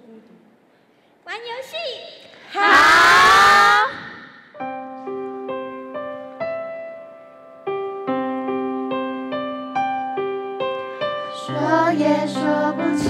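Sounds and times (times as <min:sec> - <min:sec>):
person shouting: 0:02.5 - 0:04.3.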